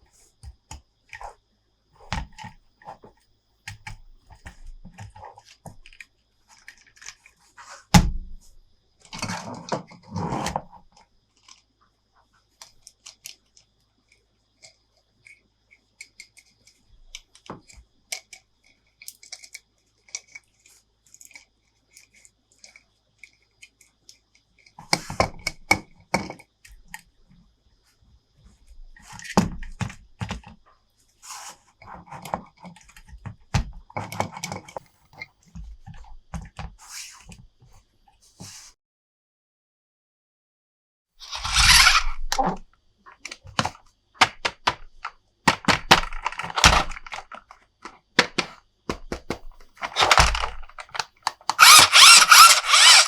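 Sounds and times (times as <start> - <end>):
plastic toy clicks and taps: 43.2 - 53.0
packaging crinkling and rustling: 43.3 - 53.0.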